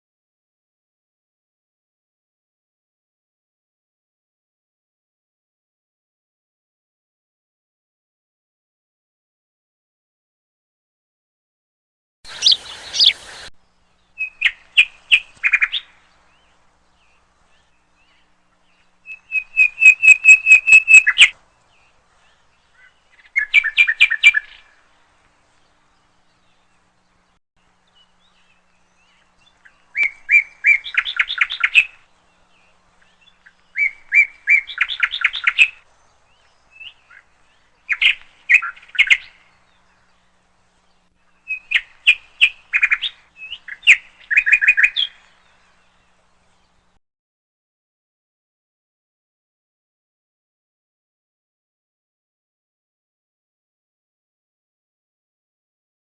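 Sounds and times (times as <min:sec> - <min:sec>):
songbird singing: 0:12.3 - 0:47.0.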